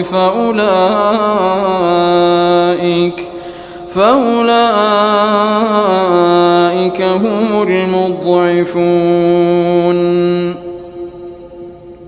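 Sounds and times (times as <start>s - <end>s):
man reciting melodically: 0.0s - 12.0s
man breathing: 3.2s - 3.9s.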